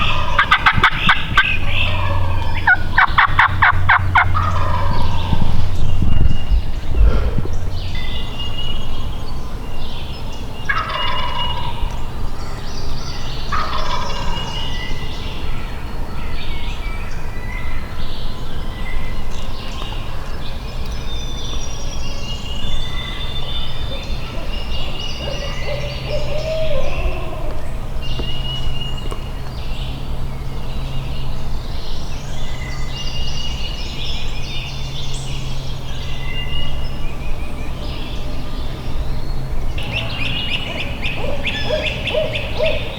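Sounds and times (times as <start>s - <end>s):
wild turkey gobbling: 0.0s - 5.8s, 10.7s - 12.0s, 13.5s - 14.6s, 23.9s - 27.6s, 39.8s - 42.9s
steady low rumble: 0.0s - 10.9s
songbirds chirping: 0.0s - 42.9s.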